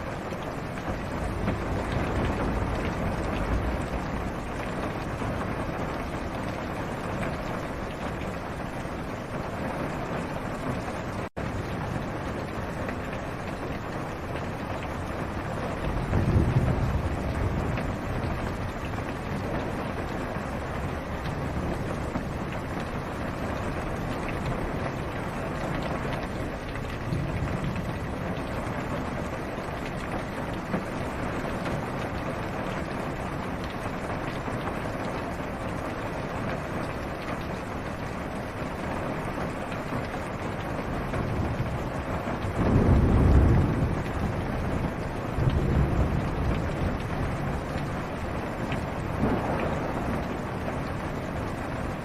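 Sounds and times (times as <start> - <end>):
rain on car roof: 0.0 - 52.0
low thunder rumble: 0.1 - 8.2, 14.8 - 25.0, 25.6 - 32.6, 40.9 - 52.0.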